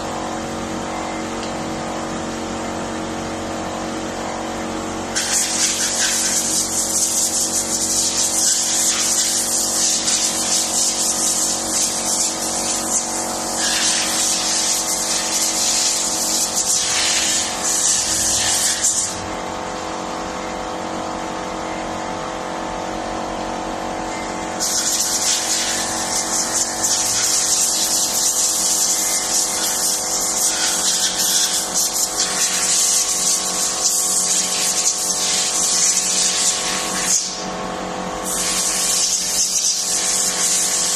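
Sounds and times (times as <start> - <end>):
high-pressure spray hissing: 5.2 - 19.2, 24.6 - 37.4, 38.2 - 40.9.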